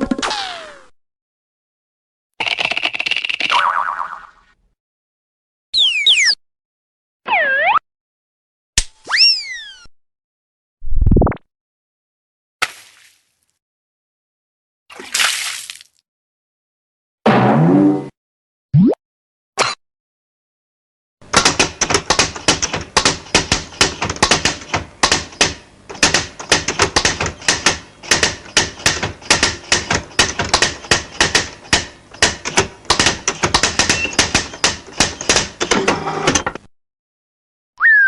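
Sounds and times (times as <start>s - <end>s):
cartoon clicking and clacking: 2.4s - 3.6s, 21.2s - 36.7s.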